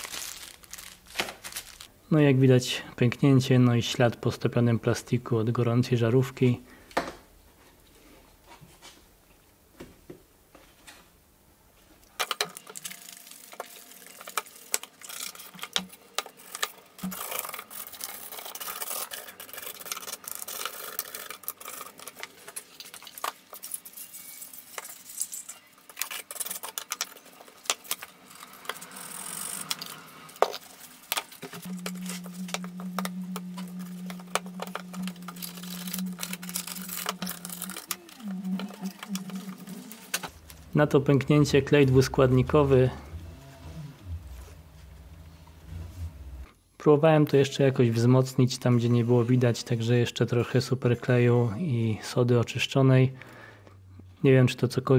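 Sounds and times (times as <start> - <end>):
steady low hum: 27.9 - 46.7.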